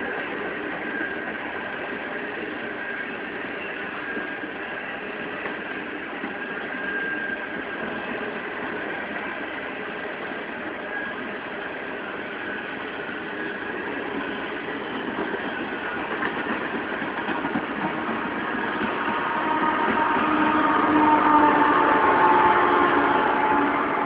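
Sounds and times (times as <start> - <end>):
train wheels rumbling on rails: 0.0 - 24.0
faint high wheel squeals: 0.5 - 16.9.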